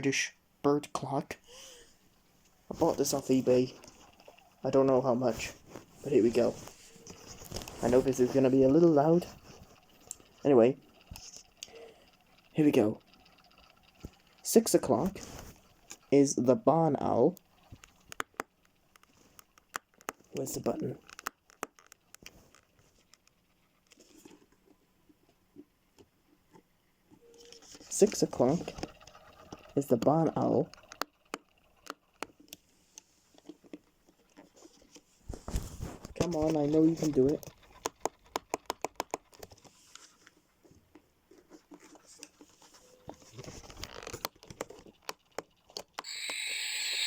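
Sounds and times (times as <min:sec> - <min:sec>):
rustling: 0:02.4 - 0:12.5
plastic clock being handled: 0:02.7 - 0:16.2, 0:33.3 - 0:46.2.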